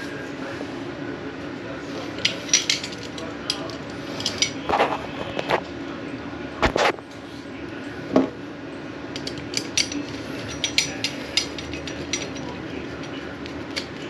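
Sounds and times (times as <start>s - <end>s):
metal tools clinking and knocking: 2.0s - 4.8s, 9.1s - 14.0s.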